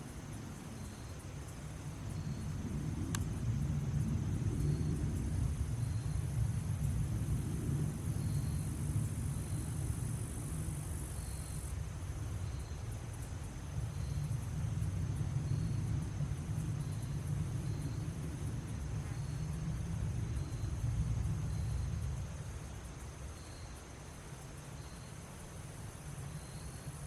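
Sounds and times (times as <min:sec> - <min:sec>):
high insect buzz: 0:00.0 - 0:27.0
insects chirping: 0:00.0 - 0:27.0
low rumble: 0:11.8 - 0:22.5.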